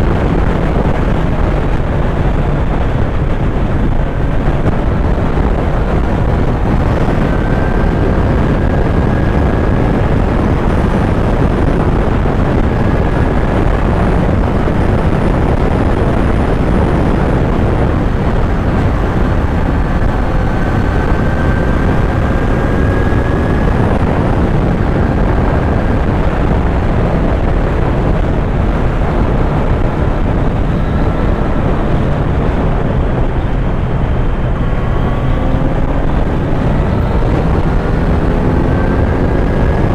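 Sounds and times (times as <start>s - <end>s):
motorcycle engine running: 0.0s - 39.9s
steady rush of noise: 0.0s - 39.9s.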